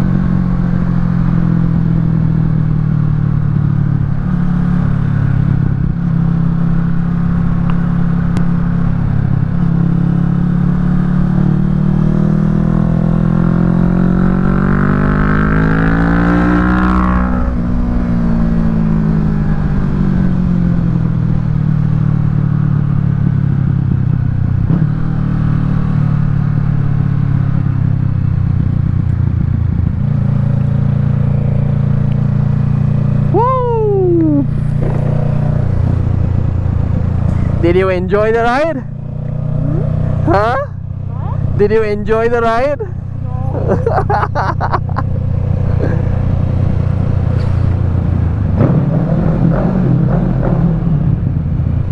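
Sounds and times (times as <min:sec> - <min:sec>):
motorcycle engine accelerating: 0:00.0 - 0:51.9
short falling tone: 0:33.3 - 0:37.6.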